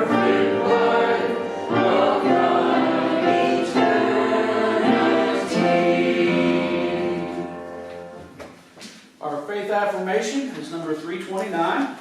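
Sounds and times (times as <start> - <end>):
congregation singing a hymn: 0.0 - 8.3.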